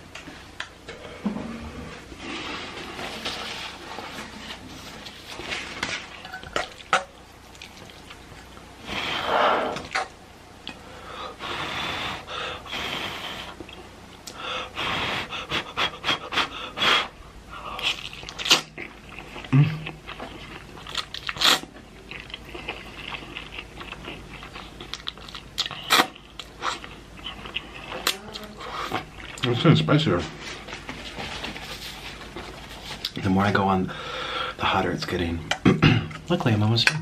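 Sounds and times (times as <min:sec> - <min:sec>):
wet chewing smacks: 0:06.6 - 0:08.7
hard breathing: 0:08.8 - 0:09.9, 0:10.7 - 0:13.6, 0:14.3 - 0:17.9, 0:33.9 - 0:34.6.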